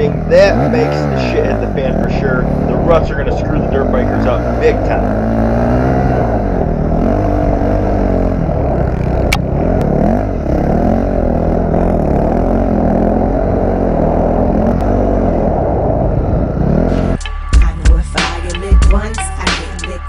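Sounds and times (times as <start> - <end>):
dirt bike engines revving: 0.0 - 20.0
music: 16.9 - 20.0.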